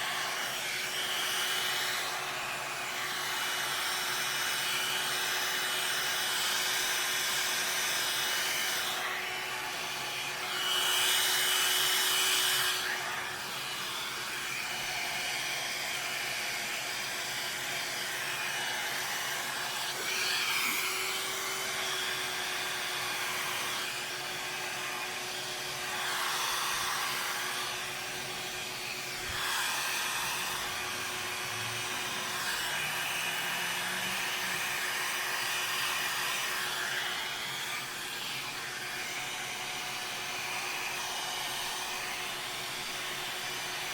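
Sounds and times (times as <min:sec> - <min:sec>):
hair dryer blowing air: 0:00.0 - 0:43.9.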